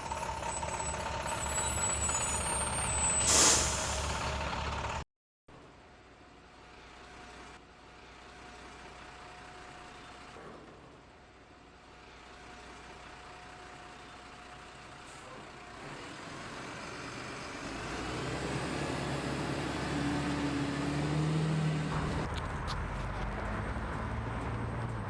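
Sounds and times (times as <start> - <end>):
bus engine running: 0.0 - 5.0, 6.6 - 25.0.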